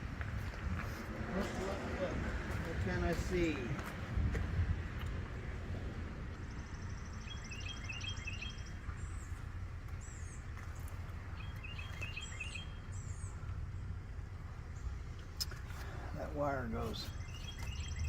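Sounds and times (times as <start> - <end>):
steady low rumble: 0.0 - 7.9, 8.5 - 18.0
birds chirping: 5.2 - 18.0.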